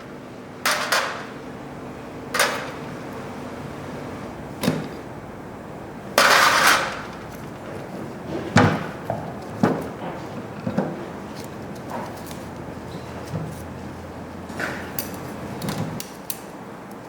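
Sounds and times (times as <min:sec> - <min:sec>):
sharp knocks and clatters: 0:06.2 - 0:11.2.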